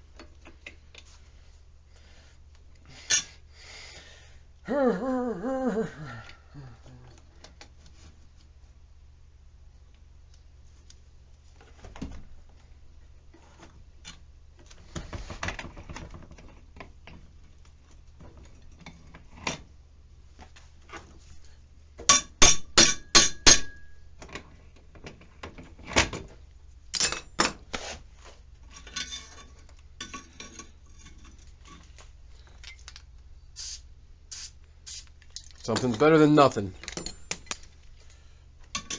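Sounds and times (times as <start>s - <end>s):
metal tools clanking: 28.7s - 31.9s, 35.6s - 37.6s.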